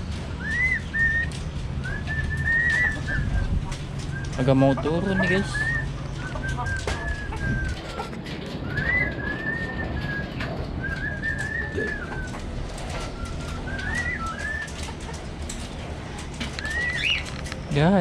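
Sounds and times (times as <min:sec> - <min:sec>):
budgerigar whistled calls: 0:16.6 - 0:17.2.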